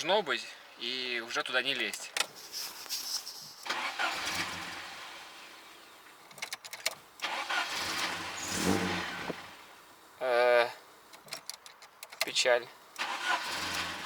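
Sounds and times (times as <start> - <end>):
car engine starter cranking: 3.6 - 5.2, 6.2 - 9.5, 11.1 - 12.4, 13.0 - 14.0.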